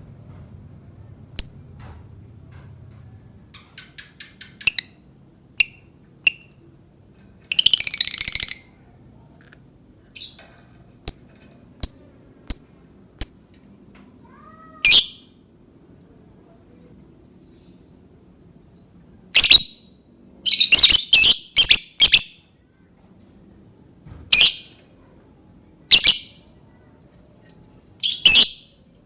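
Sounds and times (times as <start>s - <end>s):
lovebird chirping: 7.5s - 8.8s, 11.1s - 13.5s, 28.0s - 28.7s.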